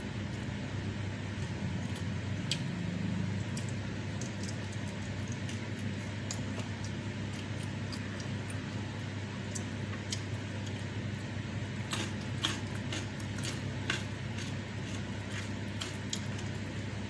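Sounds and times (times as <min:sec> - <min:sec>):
steady low hum: 0:00.0 - 0:17.0
close chewing mouth clicks: 0:03.3 - 0:08.6.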